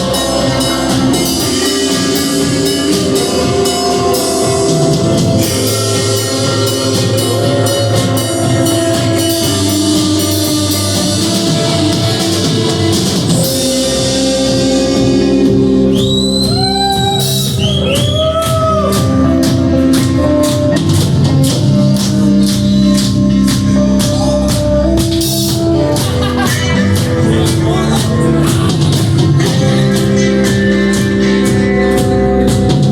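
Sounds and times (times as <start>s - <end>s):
rock band playing: 0.0s - 32.9s.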